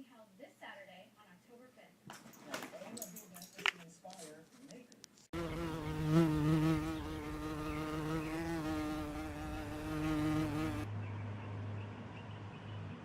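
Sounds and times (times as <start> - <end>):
insect buzzing: 5.4 - 10.9.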